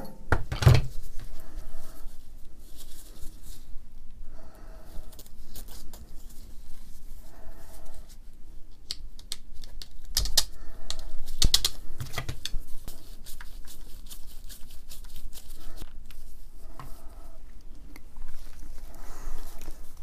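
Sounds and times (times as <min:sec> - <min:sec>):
small hard parts clicking: 0:08.8 - 0:12.6.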